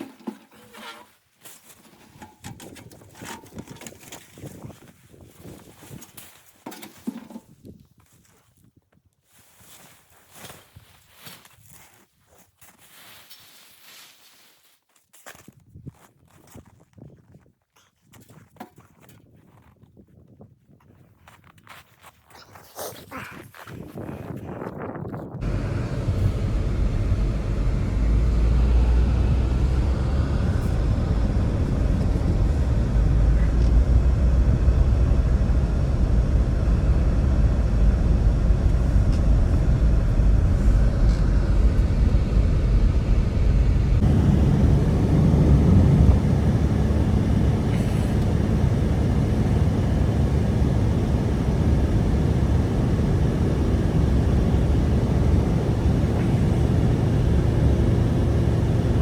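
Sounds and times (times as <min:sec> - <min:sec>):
gusting blizzard wind: 0:23.6 - 0:59.0.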